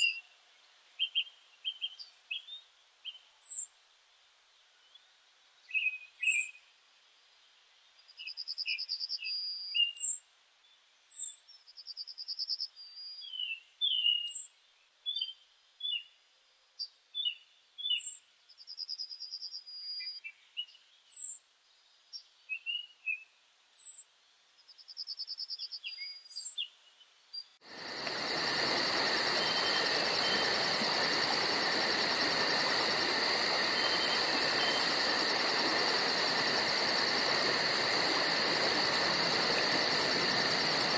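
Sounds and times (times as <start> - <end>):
songbirds singing: 0.0 - 16.2, 16.8 - 40.9
insect chorus pulsing: 27.6 - 40.9.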